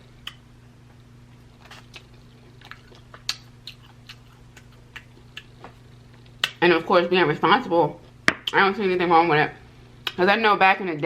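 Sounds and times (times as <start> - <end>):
steady low hum: 0.0 - 11.0
quiet chewing: 0.2 - 6.6
mouth clicks and smacks: 2.7 - 5.6.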